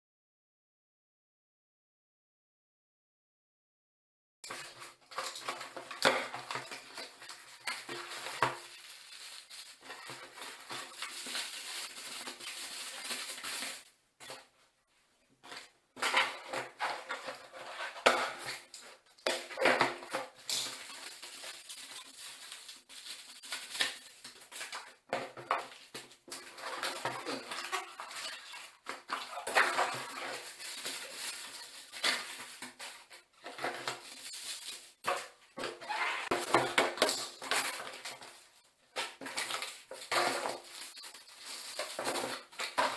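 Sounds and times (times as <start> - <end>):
metal parts clinking and rattling: 39.4 - 42.9.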